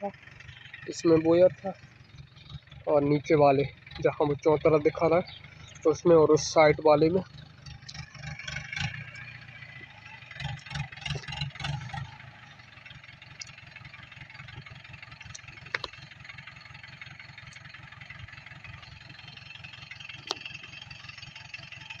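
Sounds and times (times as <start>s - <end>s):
tractor engine running: 0.0s - 22.0s
sharp clicks: 15.2s - 16.1s.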